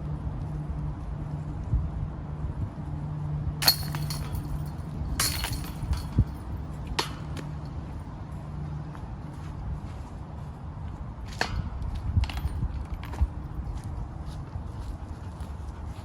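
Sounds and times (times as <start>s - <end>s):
discs clinking on metal chains: 3.6s - 7.7s.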